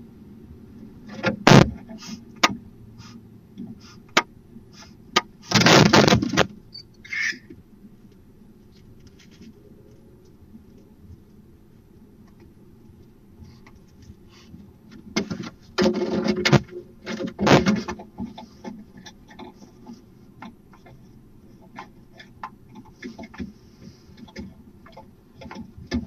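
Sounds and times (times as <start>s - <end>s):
owl hissing screech: 7.0s - 7.5s
owl rasping calls: 7.0s - 7.6s.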